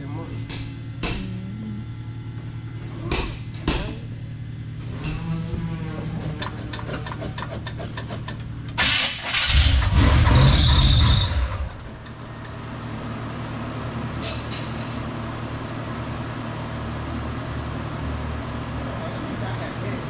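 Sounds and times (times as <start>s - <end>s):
high squeal: 10.0s - 11.6s.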